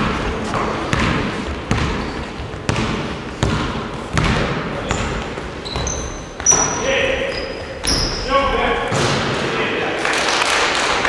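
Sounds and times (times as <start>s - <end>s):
basketball bouncing on wooden floor: 0.0s - 9.4s
shoe squeaks: 4.8s - 8.8s.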